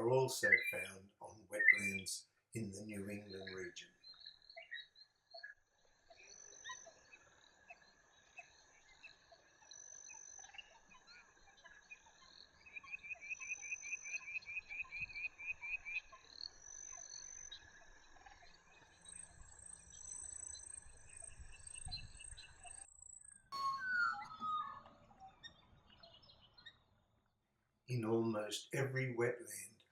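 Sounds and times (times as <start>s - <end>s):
frogs and insects trilling: 0.0s - 2.1s, 2.7s - 24.9s
rapid pulsed frog calls: 4.0s - 25.0s.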